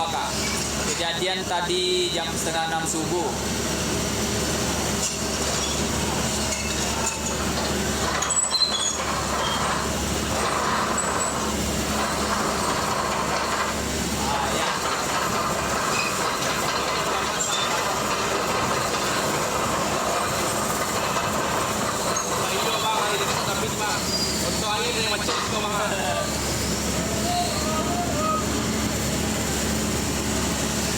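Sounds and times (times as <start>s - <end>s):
heavy vehicles on road: 3.3s - 22.6s, 23.2s - 30.9s
short high squeals: 8.2s - 11.6s, 23.9s - 24.7s, 26.2s - 28.6s.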